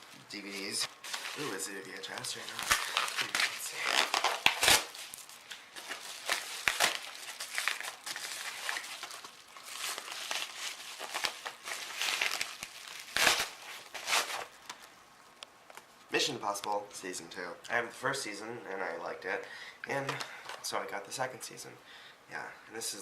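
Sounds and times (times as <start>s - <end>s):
packaging rustling and crinkling: 0.0s - 14.9s
packaging tearing: 0.3s - 14.6s.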